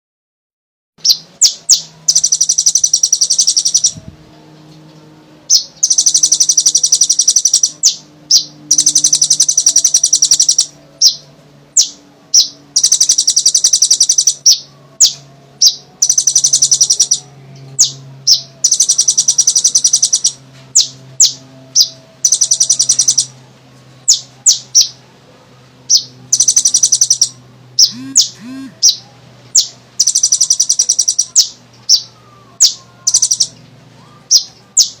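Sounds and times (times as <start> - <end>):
bird high trills: 1.0 - 4.7, 5.5 - 23.4, 25.9 - 35.0.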